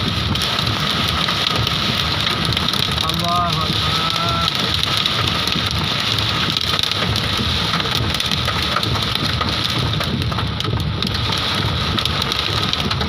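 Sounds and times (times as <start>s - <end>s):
hail and heavy rain pelting: 0.0s - 13.0s.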